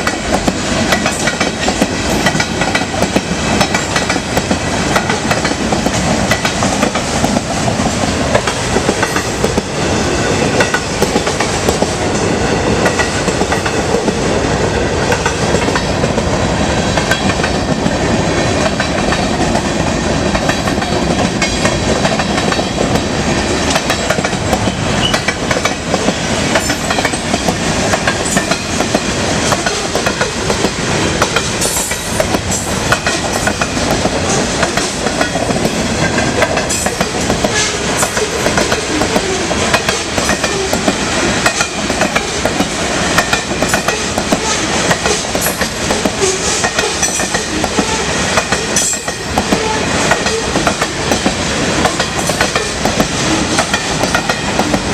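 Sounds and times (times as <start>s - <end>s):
wheels clicking over rail joints: 0.0s - 9.7s
freight train rumble and rattle: 0.0s - 54.9s.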